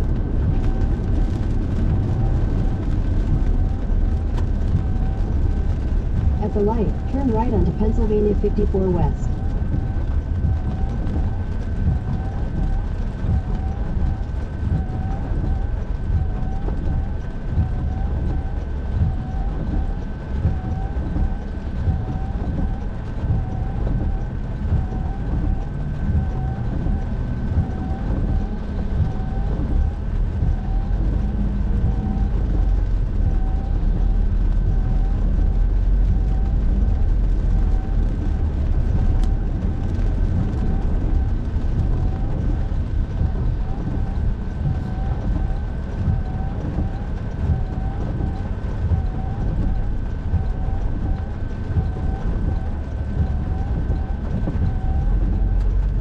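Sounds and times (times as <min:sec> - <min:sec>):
road and engine rumble: 0:00.0 - 0:56.0
thin steady whine: 0:04.8 - 0:14.2.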